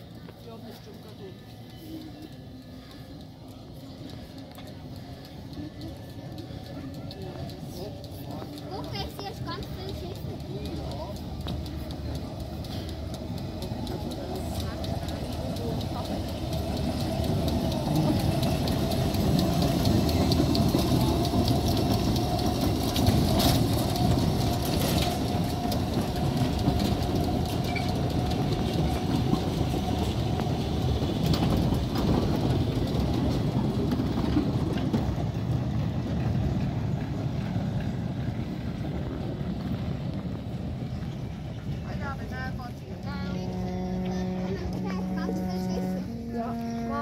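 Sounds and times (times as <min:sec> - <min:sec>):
rumble of train wheels and gearing: 0:00.0 - 0:47.0
wheels clacking on track: 0:00.0 - 0:47.0
thin steady hum: 0:42.2 - 0:47.0.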